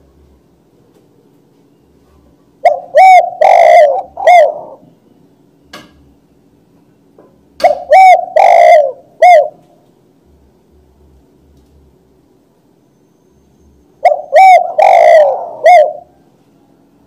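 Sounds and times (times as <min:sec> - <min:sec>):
dove cooing: 0:02.4 - 0:04.9, 0:07.6 - 0:09.8, 0:14.0 - 0:16.4.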